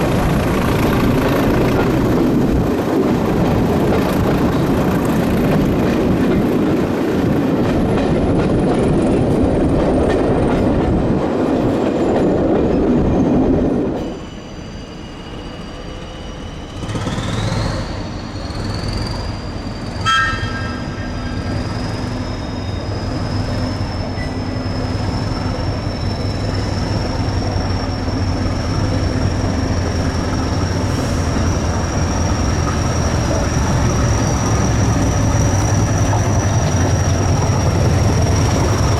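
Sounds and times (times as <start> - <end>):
train wheels rumbling: 0.0 - 38.9
short train toot: 14.0 - 23.3.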